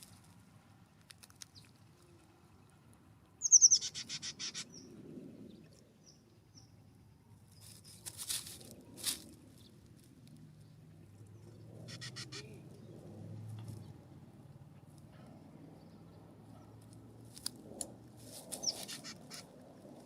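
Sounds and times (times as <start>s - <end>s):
bird harsh rasping calls: 3.4s - 4.9s, 11.8s - 12.6s, 18.6s - 19.5s.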